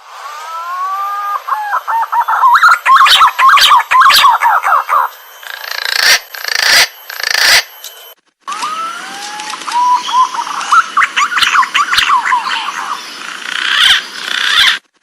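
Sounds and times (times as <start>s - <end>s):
green pigeon whistling call: 0.3s - 5.2s, 8.5s - 13.0s.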